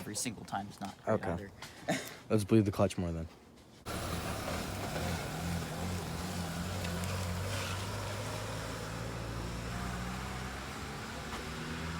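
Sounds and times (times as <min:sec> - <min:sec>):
truck engine idling: 0:03.9 - 0:08.1.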